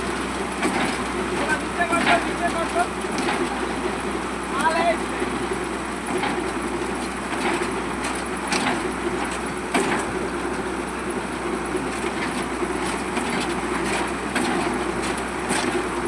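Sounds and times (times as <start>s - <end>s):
heavy construction machinery running: 0.0s - 16.0s.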